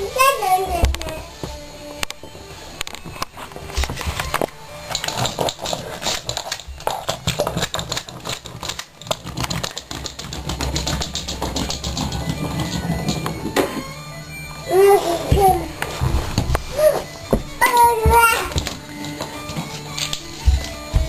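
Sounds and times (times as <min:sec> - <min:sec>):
clockwork toy clicking: 0:04.3 - 0:13.4.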